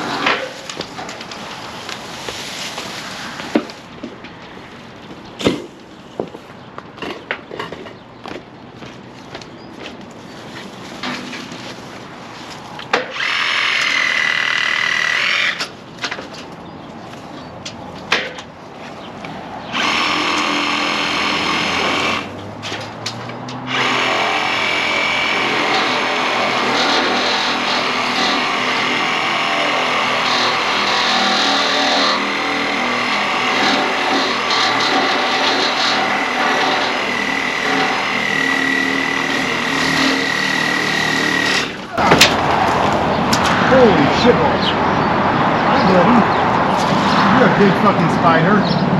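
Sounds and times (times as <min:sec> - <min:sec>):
electric saw cutting limbs: 0:00.0 - 0:03.9, 0:12.8 - 0:15.8, 0:19.6 - 0:44.6.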